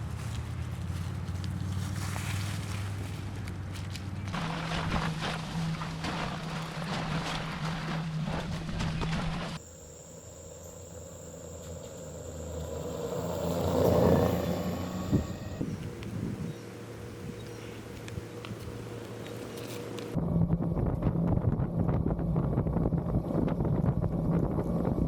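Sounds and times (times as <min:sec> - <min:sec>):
tyres crunching over rough ground: 0:00.0 - 0:09.6
low motor hum: 0:00.0 - 0:25.0
thin high steady tone: 0:09.6 - 0:16.0
rushing sound: 0:11.2 - 0:15.8.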